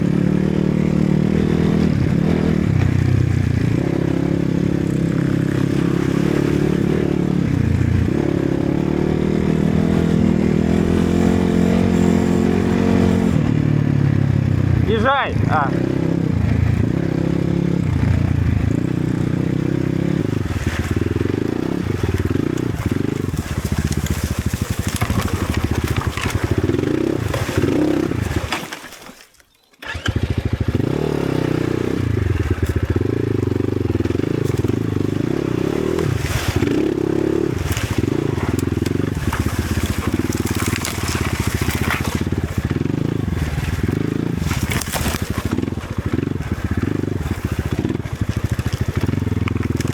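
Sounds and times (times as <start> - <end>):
motorcycle engine revving: 0.0 - 28.9, 29.8 - 49.9
knocks and rattles: 22.2 - 29.0.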